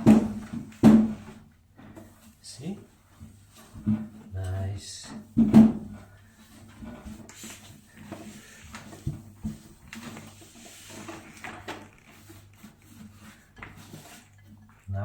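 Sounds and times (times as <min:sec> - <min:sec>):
wet cloth rubbing: 0:07.3 - 0:15.0.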